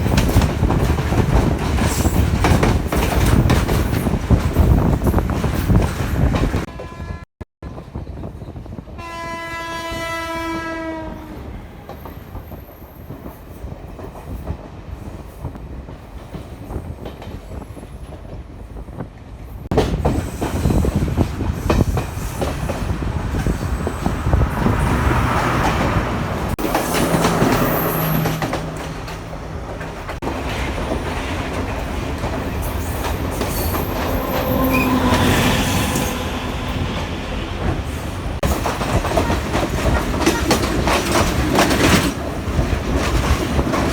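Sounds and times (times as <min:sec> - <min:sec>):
wheels clattering on rails: 0:00.0 - 0:06.7, 0:19.7 - 0:43.9
train horn: 0:06.7 - 0:07.3, 0:09.0 - 0:12.0, 0:34.0 - 0:37.8
train running past: 0:07.6 - 0:43.9.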